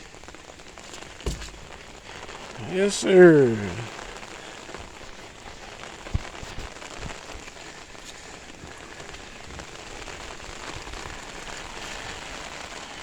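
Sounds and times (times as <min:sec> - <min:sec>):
steady rain falling: 0:00.0 - 0:13.0
short thump: 0:01.3 - 0:01.8.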